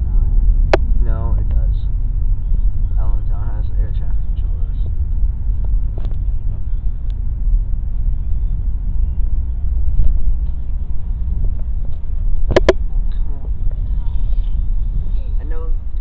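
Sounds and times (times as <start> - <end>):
aircraft engines rumbling: 0.0 - 16.0
sharp clicks: 12.5 - 12.8.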